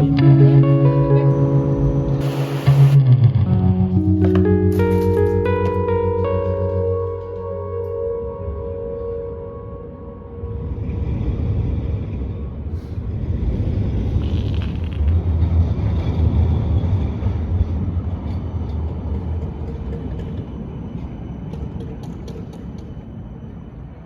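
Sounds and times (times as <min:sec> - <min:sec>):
road traffic rumble: 0:00.0 - 0:06.4, 0:08.4 - 0:21.2.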